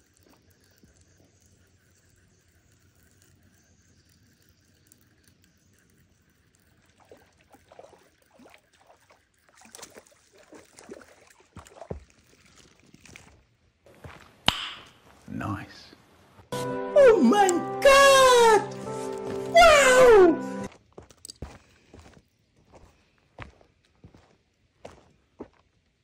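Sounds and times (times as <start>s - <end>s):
water splashing: 5.7s - 13.4s.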